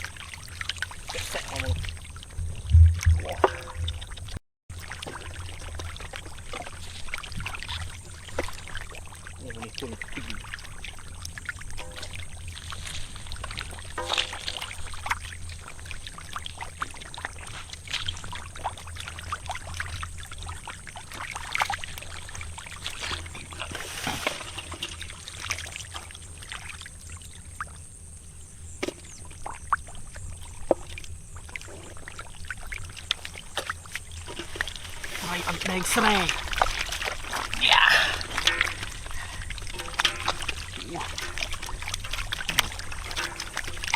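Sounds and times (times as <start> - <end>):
muddy water splashing: 0.0 - 27.9, 28.6 - 43.9
low hum: 1.5 - 4.4.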